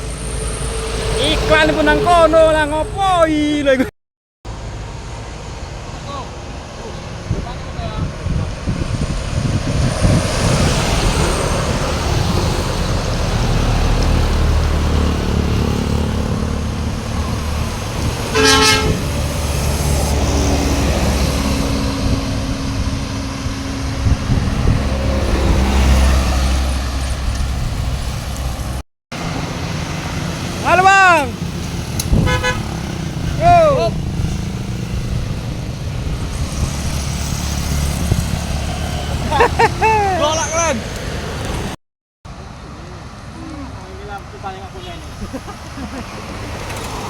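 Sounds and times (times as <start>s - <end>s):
heavy vehicles passing: 0.0s - 3.8s, 4.5s - 47.0s
vehicle horn toot: 18.3s - 19.1s, 32.2s - 32.7s.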